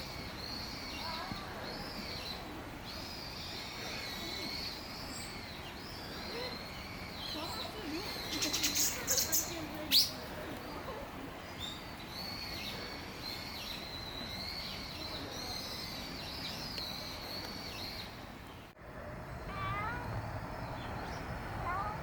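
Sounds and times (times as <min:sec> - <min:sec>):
bird chirping: 0:00.0 - 0:10.2.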